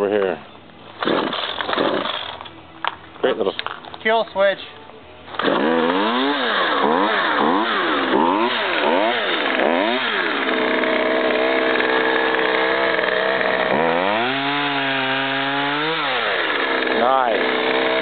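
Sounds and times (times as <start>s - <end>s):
chainsaw cutting into log: 1.0s - 2.5s, 5.3s - 18.0s
chainsaw revving: 1.0s - 2.5s, 5.3s - 18.0s.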